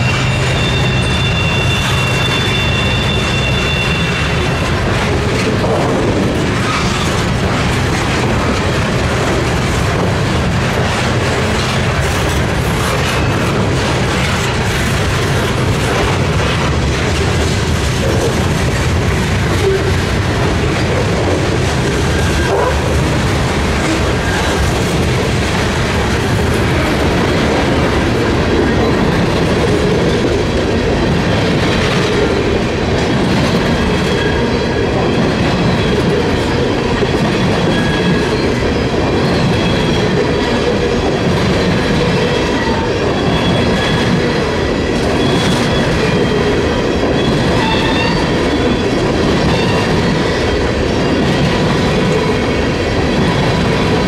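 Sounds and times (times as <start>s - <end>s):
high wheel squealing: 0.0s - 4.7s
steel wheels rumbling on rail: 0.0s - 54.0s.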